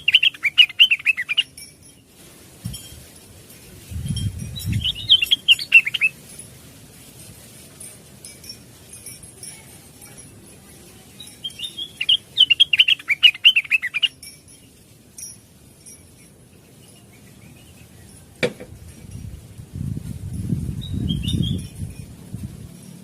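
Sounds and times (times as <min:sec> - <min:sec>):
bird chirping: 0:00.0 - 0:02.1, 0:04.0 - 0:06.4, 0:10.2 - 0:14.9, 0:15.8 - 0:18.6, 0:20.6 - 0:22.1
low fluttering rumble: 0:03.6 - 0:05.2, 0:18.7 - 0:22.9.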